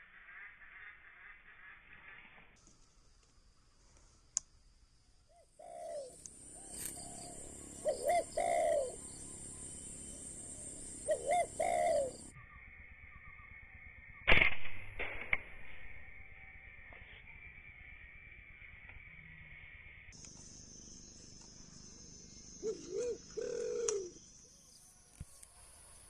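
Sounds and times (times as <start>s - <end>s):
dove cooing: 5.5s - 12.3s, 22.6s - 24.2s
sharp loud crack: 14.3s - 16.0s.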